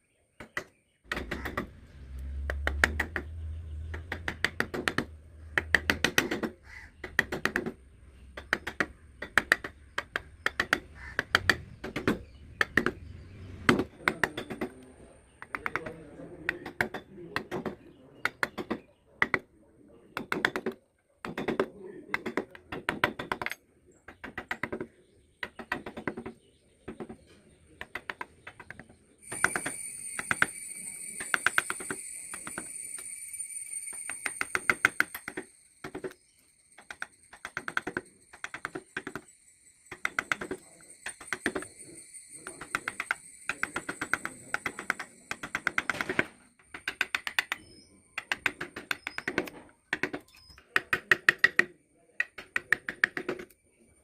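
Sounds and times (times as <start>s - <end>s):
blade carving wood: 0.4s - 19.4s, 20.2s - 27.2s, 27.8s - 32.7s, 34.0s - 39.3s, 42.4s - 53.5s
high-pitched whine: 29.2s - 46.6s.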